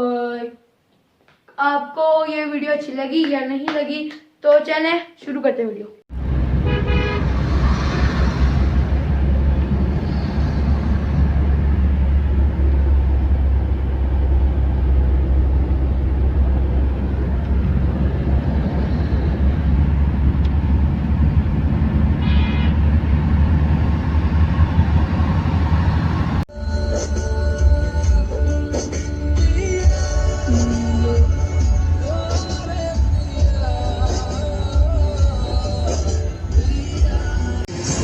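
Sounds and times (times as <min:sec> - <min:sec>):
car engine and road noise: 0:06.1 - 0:38.0
horn toot: 0:06.6 - 0:07.4, 0:22.2 - 0:22.9.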